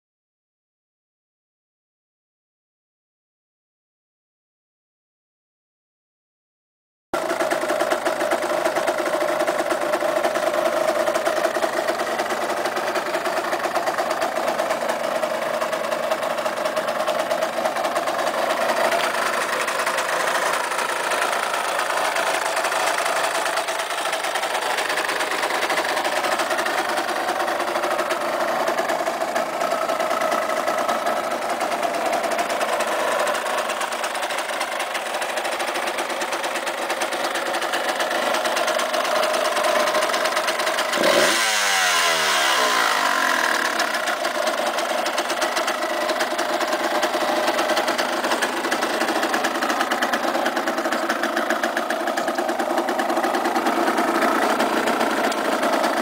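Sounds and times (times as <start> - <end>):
two-stroke motorcycle engine idling: 7.2 - 56.0.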